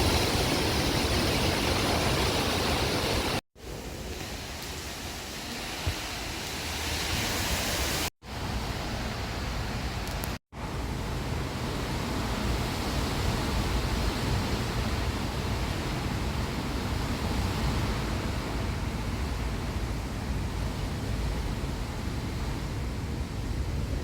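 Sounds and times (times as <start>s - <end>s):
steady rushing noise with rumble: 0.0s - 24.0s.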